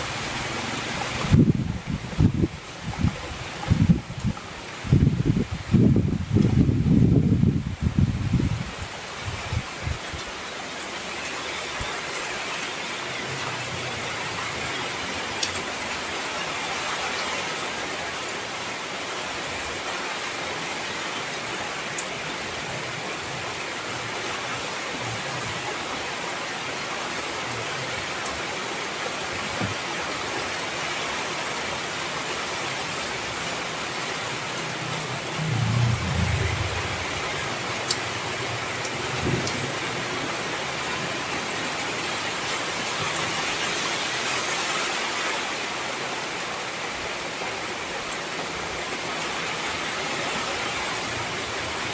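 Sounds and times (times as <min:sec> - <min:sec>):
heavy rain: 0:00.0 - 0:51.9
low rumble: 0:35.3 - 0:37.7.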